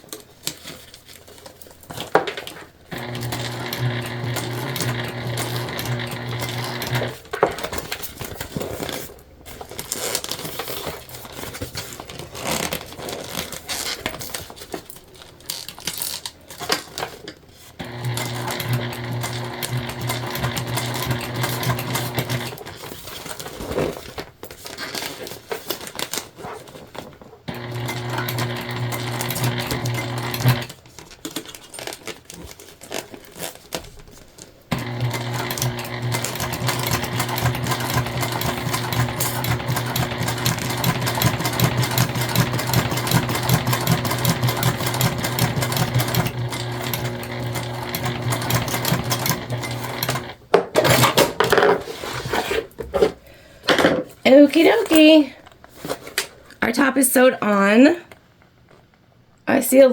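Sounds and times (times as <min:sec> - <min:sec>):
sewing machine stitching: 0:02.9 - 0:08.9, 0:17.8 - 0:24.0, 0:27.5 - 0:30.8, 0:34.7 - 0:51.7.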